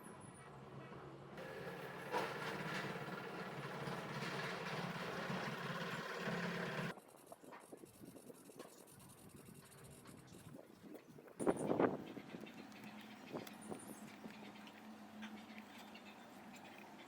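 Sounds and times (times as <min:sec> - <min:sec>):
motor humming: 0:01.4 - 0:06.9.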